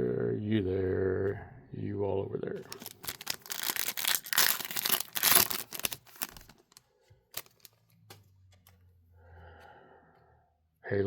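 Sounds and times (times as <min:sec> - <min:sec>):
foil wrapper tearing and crinkling: 0:02.6 - 0:06.8, 0:07.4 - 0:07.8.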